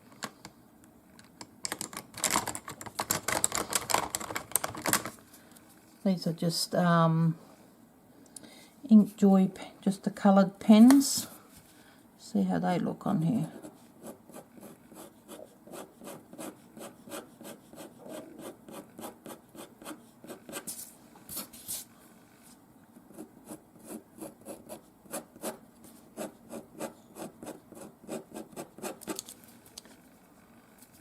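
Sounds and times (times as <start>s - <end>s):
pen colouring strokes: 14.0s - 20.8s.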